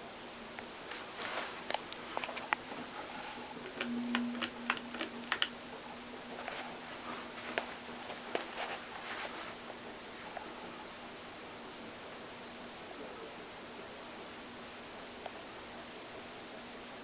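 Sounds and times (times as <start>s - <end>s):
ceiling fan motor humming: 0.0s - 17.0s
sharp clicks and ticks: 3.6s - 5.6s.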